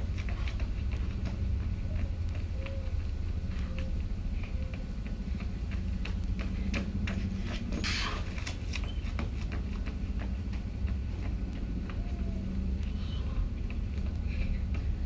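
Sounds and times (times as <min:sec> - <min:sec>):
running footsteps: 0:00.0 - 0:15.0.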